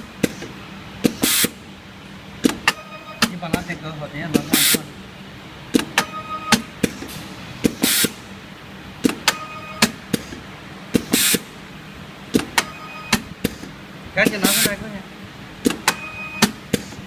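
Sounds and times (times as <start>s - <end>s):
short air hiss: 0.2s - 1.6s, 6.8s - 8.2s, 11.0s - 11.5s.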